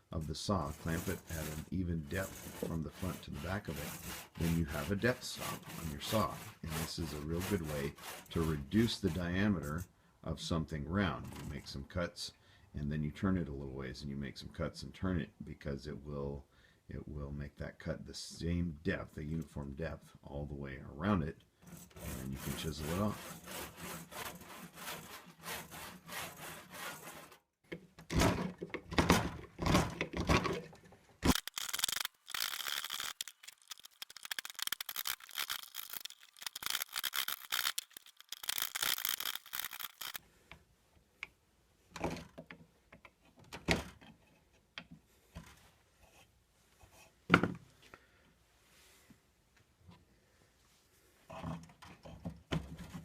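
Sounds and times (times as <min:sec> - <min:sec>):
handsaw cutting wood: 0:00.5 - 0:09.4, 0:21.7 - 0:27.4, 0:31.3 - 0:40.2.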